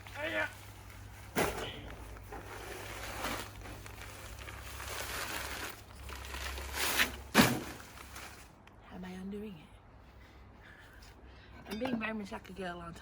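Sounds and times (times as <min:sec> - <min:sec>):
sand and pebbles pouring: 0:02.4 - 0:08.5.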